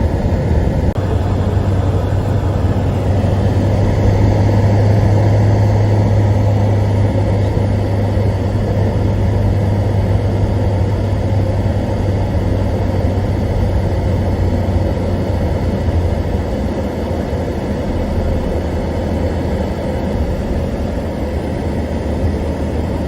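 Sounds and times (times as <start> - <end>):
car engine and road drone: 0.0 - 23.0.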